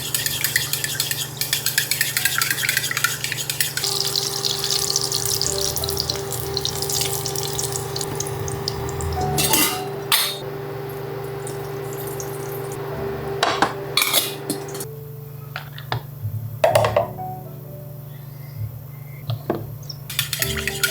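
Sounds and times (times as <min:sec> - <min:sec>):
cookware and utensils clattering: 0:00.0 - 0:04.8, 0:09.1 - 0:10.4, 0:13.4 - 0:14.9, 0:16.6 - 0:17.2, 0:19.3 - 0:20.9
food sizzling in a frying pan: 0:03.8 - 0:12.9
steady hum: 0:03.8 - 0:15.4.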